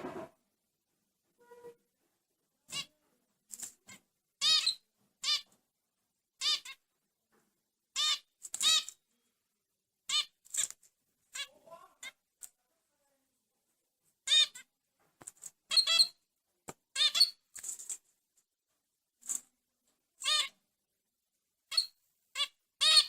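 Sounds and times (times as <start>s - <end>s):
bulbul squeaky calls: 3.9s - 5.5s, 6.4s - 6.8s, 8.0s - 9.0s, 14.3s - 14.7s, 15.7s - 16.2s, 16.9s - 17.4s, 20.2s - 20.6s, 21.7s - 23.0s.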